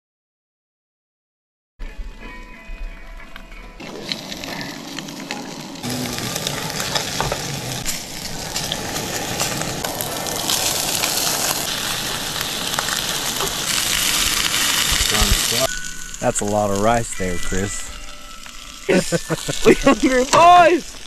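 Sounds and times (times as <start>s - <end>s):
food sizzling in a pan: 3.8s - 21.0s.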